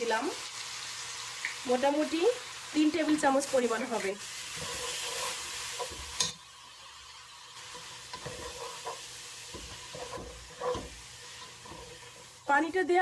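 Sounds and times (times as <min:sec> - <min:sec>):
masala sizzling in a pot: 0:00.0 - 0:13.0
spoon scraping a pot: 0:04.5 - 0:06.4, 0:07.6 - 0:12.3.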